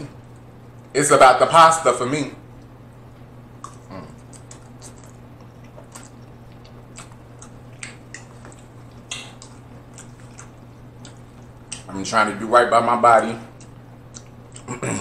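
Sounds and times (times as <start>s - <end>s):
steady low hum: 0.0s - 15.0s
chewing with wet mouth clicks: 3.6s - 11.9s, 13.5s - 14.8s.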